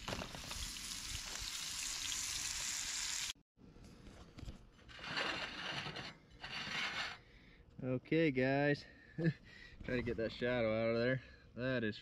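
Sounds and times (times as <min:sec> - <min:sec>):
food sizzling in a hot pan: 0:00.0 - 0:03.4.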